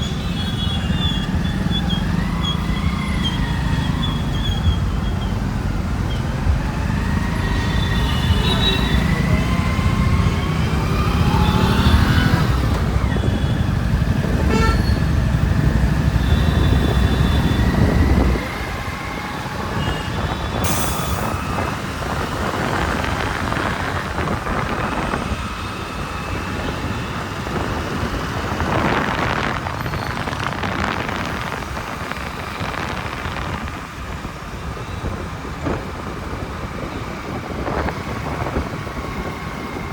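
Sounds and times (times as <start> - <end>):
motorbike engine and road rumble: 0.0 - 39.9
traffic noise: 0.0 - 39.9
vehicle horn toots: 14.4 - 15.0.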